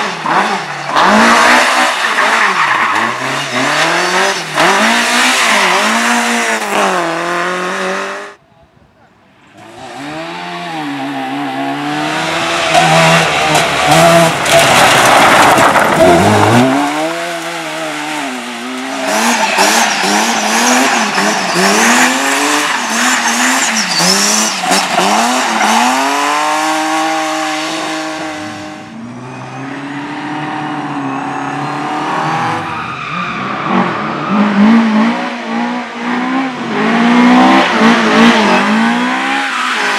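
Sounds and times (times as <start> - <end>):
race car engine revving: 0.0 - 8.4, 9.6 - 39.9
tyres squealing: 12.3 - 26.5.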